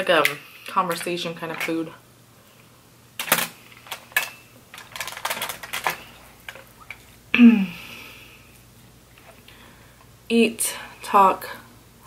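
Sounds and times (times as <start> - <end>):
crab shells cracking: 3.2 - 7.0.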